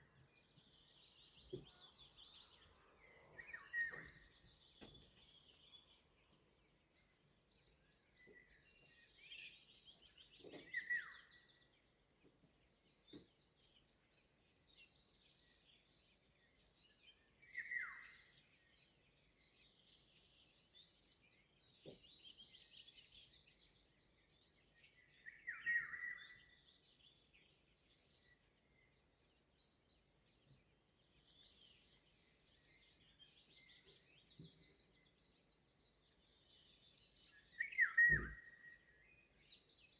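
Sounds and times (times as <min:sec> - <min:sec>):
faint bird chorus: 0:00.0 - 0:39.9.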